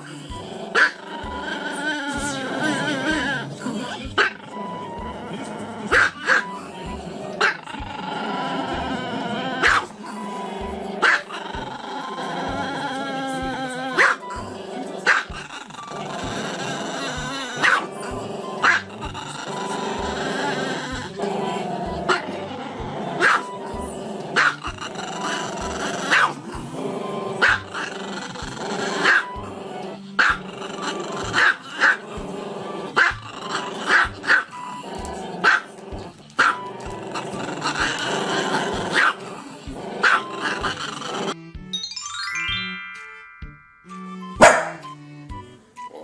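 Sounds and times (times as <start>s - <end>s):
small dog barking: 0.7s - 1.0s, 5.9s - 6.5s, 9.6s - 9.9s, 11.0s - 11.3s, 13.9s - 14.3s, 15.0s - 15.4s, 17.6s - 17.9s, 18.6s - 18.9s, 23.2s - 23.6s, 24.4s - 24.6s, 26.1s - 26.4s, 27.4s - 27.7s, 29.0s - 29.4s, 30.2s - 30.4s, 31.3s - 32.0s, 33.8s - 34.7s, 35.4s - 35.7s, 36.4s - 36.6s, 38.9s - 39.2s, 40.0s - 40.6s, 44.4s - 44.8s.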